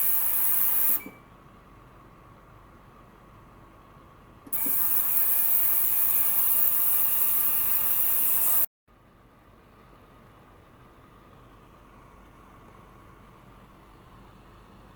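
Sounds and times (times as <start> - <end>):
ultrasonic cleaner hissing: 0.0 - 1.0, 4.6 - 8.7.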